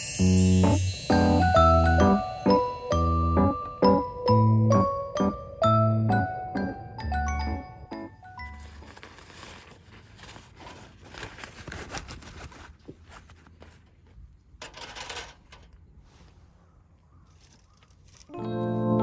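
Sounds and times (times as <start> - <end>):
rustling and handling: 8.3 - 18.4.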